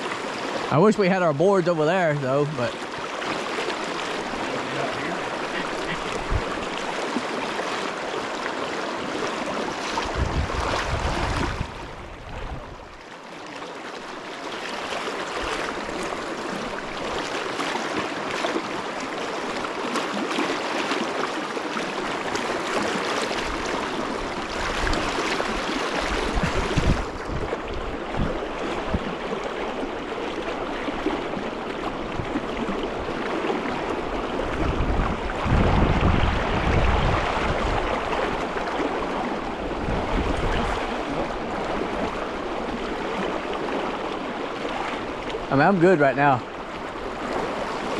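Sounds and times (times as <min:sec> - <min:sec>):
river water rushing: 0:00.0 - 0:47.9
wind buffeting microphone: 0:05.5 - 0:06.9, 0:09.9 - 0:13.0, 0:23.4 - 0:29.3, 0:33.8 - 0:43.3.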